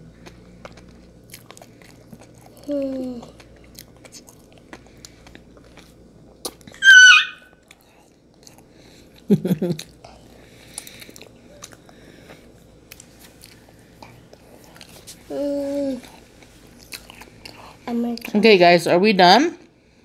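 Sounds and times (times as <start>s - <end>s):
chewing soft marshmallow: 0.0s - 6.8s, 7.6s - 15.2s.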